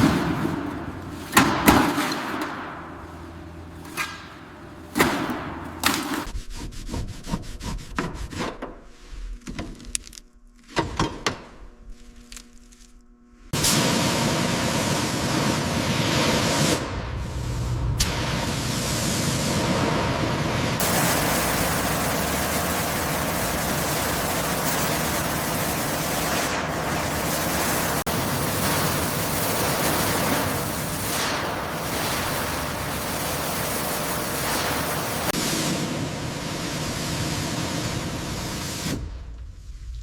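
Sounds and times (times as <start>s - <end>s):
loud hissing rush of noise: 13.6s - 40.0s.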